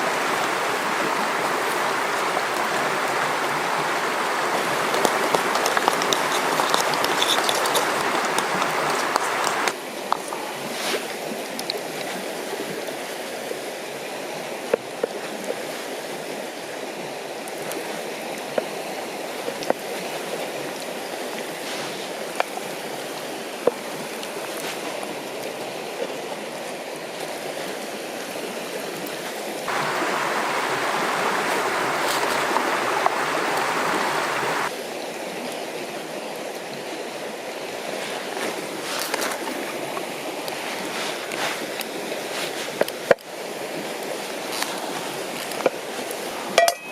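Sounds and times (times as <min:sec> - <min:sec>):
river flowing: 0:00.0 - 0:46.9.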